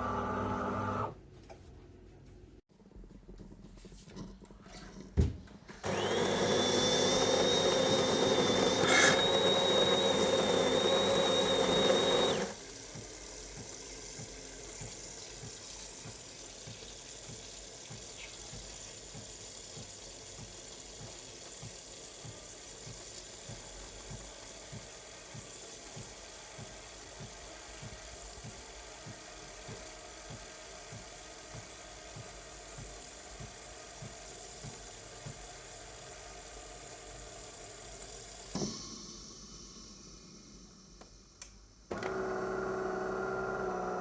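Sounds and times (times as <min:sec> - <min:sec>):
coffee machine whine: 0:00.0 - 0:01.6, 0:05.8 - 0:26.2, 0:41.9 - 0:44.0.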